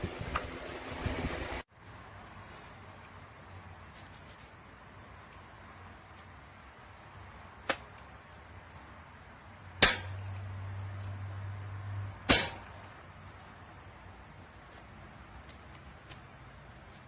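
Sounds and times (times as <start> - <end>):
hammer striking metal: 7.7 - 7.9, 9.8 - 10.7, 12.3 - 13.0.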